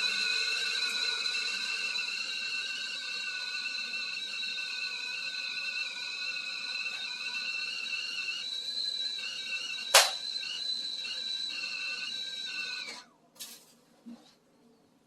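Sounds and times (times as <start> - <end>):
kettle whistling: 0.0 - 13.2
sharp click: 9.9 - 10.2.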